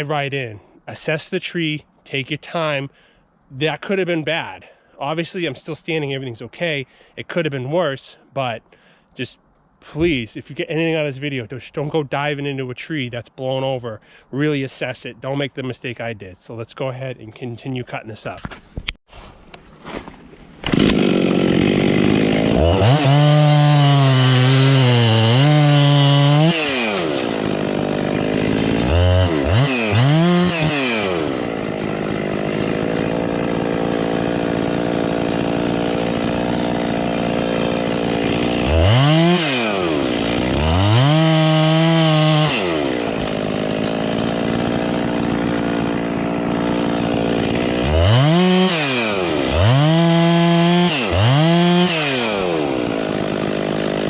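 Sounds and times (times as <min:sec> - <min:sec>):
chainsaw revving and idling: 0:20.7 - 0:54.0.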